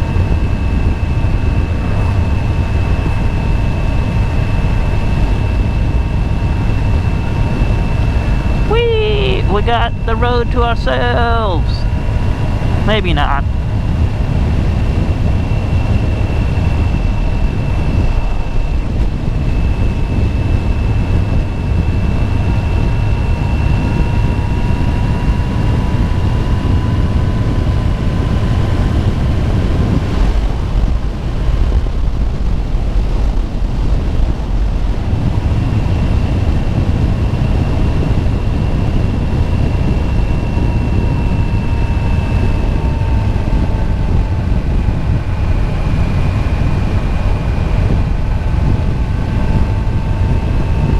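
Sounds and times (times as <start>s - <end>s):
motorcycle engine whine: 0.0s - 8.7s, 13.4s - 32.9s, 34.6s - 50.9s
wind rushing over microphone: 11.8s - 50.9s.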